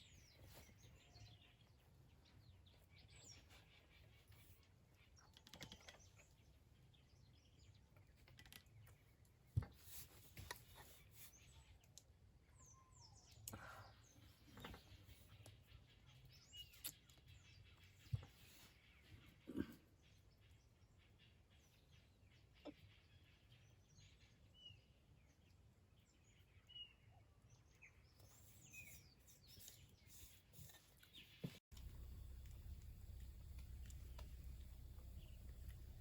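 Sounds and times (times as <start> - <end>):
faint bird chirps: 8.8 - 25.0, 26.2 - 36.0
sharp clicks: 31.7 - 36.0.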